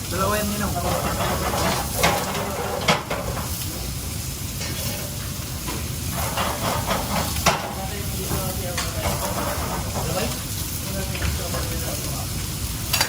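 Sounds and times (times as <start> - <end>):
food sizzling in hot pan: 0.0 - 13.0
utensil clinking against pan: 6.2 - 10.2.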